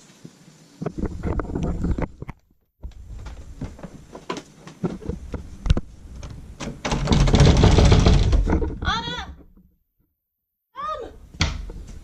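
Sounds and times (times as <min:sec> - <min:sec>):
rustling: 0:00.0 - 0:09.3
knocks and clicks: 0:04.8 - 0:09.6.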